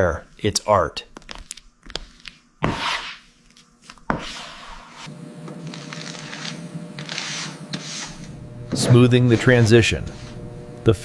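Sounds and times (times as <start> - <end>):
rubbing stroke on filler: 2.0 - 10.5
faint hum: 5.0 - 11.0.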